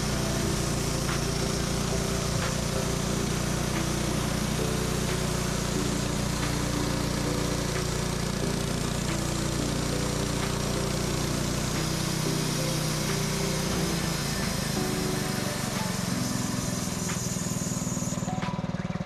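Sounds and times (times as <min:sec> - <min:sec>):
small gasoline engine humming: 0:00.0 - 0:19.0.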